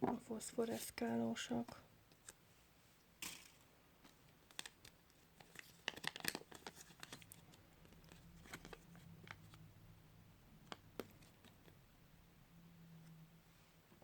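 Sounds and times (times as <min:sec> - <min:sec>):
wrapping crinkling and clicks: 0:04.1 - 0:09.6.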